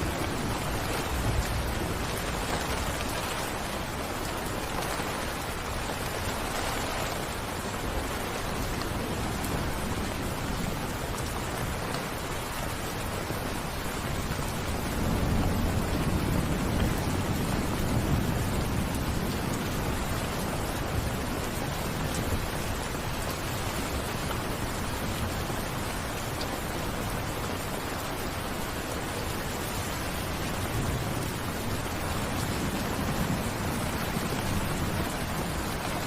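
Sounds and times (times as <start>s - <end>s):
rain falling: 0.0s - 36.0s.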